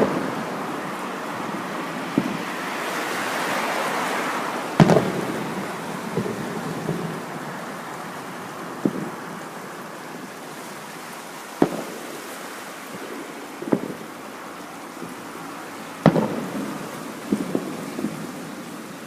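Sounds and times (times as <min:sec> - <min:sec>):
distant fireworks booms: 0:00.0 - 0:02.6, 0:04.8 - 0:10.3, 0:11.6 - 0:14.3, 0:16.0 - 0:19.0
steady rushing background noise: 0:00.0 - 0:19.0.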